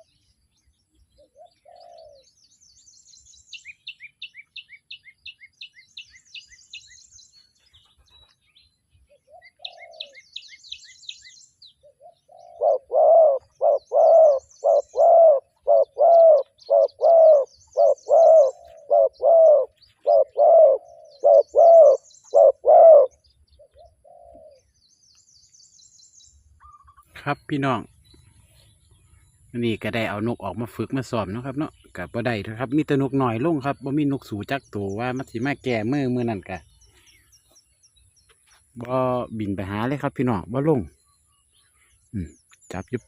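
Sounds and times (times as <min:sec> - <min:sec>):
small bird chirping: 0:00.0 - 0:43.0
dove cooing: 0:01.1 - 0:02.4, 0:09.1 - 0:10.3, 0:11.8 - 0:24.8.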